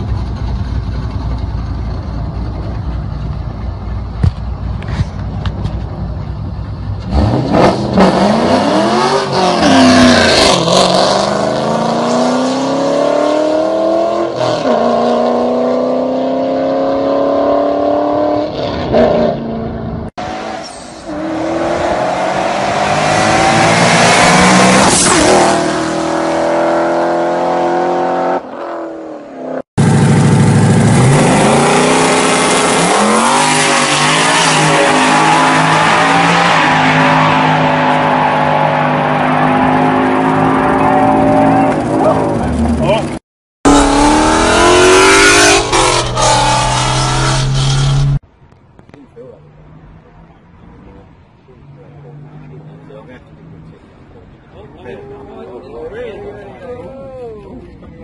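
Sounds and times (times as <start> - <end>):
car engine accelerating hard: 21.1 - 28.4, 29.8 - 48.2.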